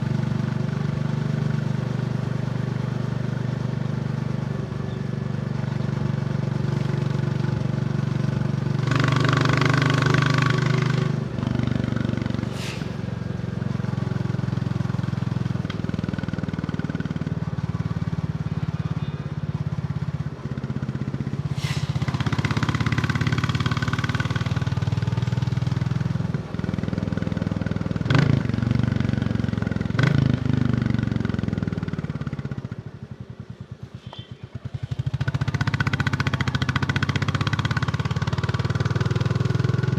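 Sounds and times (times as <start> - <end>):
motorcycle engine running: 0.0 - 39.9
rushing noise: 12.1 - 14.2, 21.4 - 22.8.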